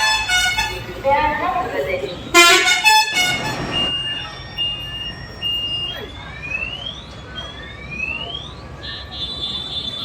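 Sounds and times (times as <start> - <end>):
vehicle horn blast: 0.0 - 0.9, 2.3 - 3.8
high electronic beeps: 3.7 - 8.6.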